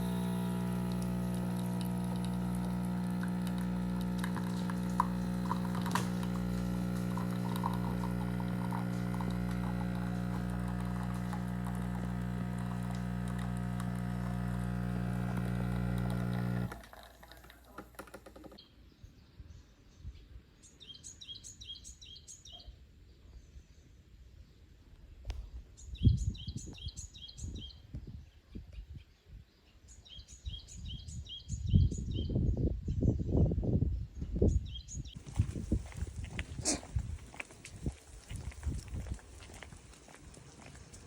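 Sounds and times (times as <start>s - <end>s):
machine hum: 0.0s - 16.9s.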